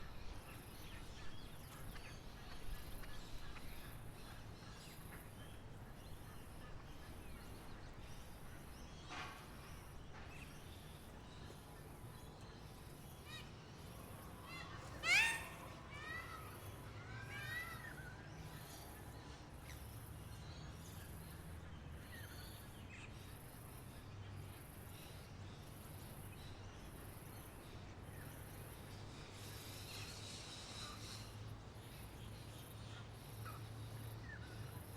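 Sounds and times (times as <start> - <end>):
birds calling: 14.4 - 16.6.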